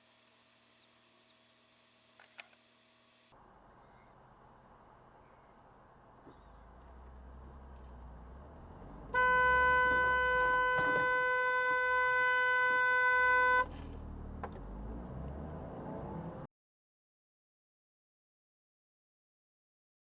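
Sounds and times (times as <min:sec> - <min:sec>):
car driving rumble: 0:03.7 - 0:12.2, 0:12.9 - 0:16.5
car horn steady note: 0:09.1 - 0:13.8.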